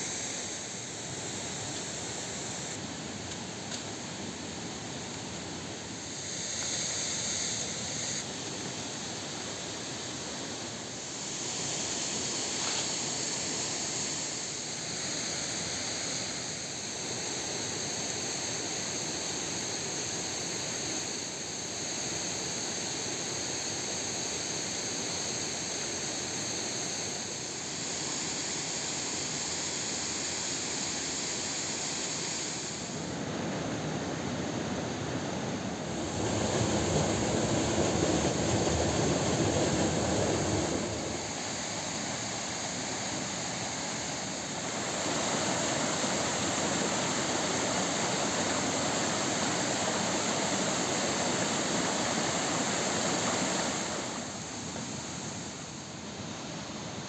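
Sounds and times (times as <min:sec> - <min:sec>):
steady rushing noise: 0:32.2 - 0:55.7.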